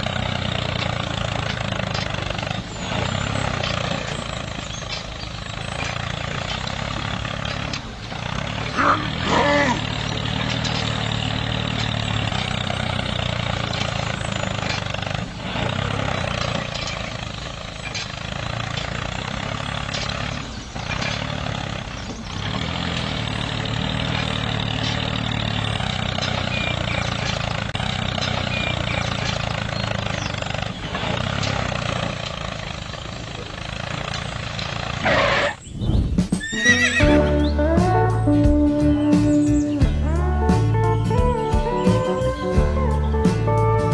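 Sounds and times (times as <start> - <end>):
music: 36.6 - 43.9.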